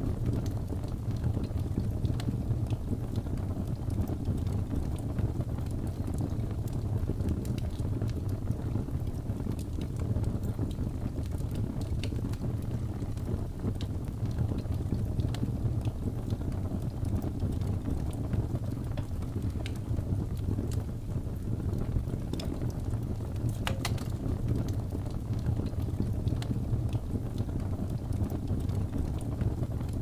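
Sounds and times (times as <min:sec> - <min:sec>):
wood fire crackling: 0:00.0 - 0:30.0
sharp fire pop: 0:23.6 - 0:24.2.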